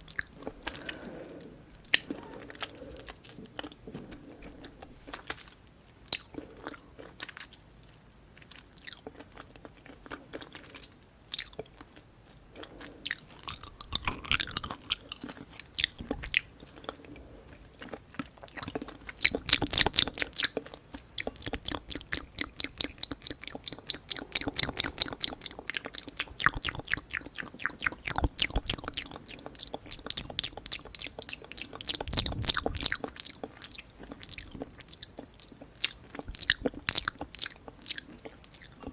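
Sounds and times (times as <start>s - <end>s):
wet mouth clicks: 0.0s - 2.3s, 19.2s - 20.5s, 21.2s - 33.4s, 34.2s - 38.9s
chewing smacks: 0.0s - 17.0s, 17.6s - 38.9s.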